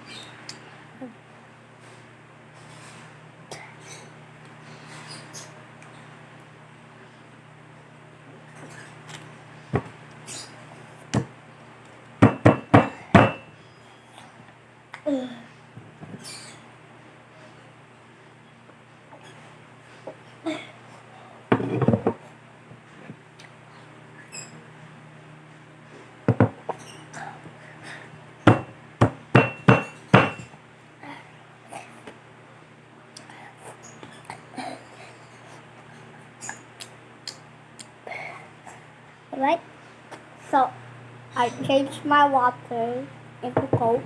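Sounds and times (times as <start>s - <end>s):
sharp knocks: 12.2s - 13.5s, 28.5s - 30.5s.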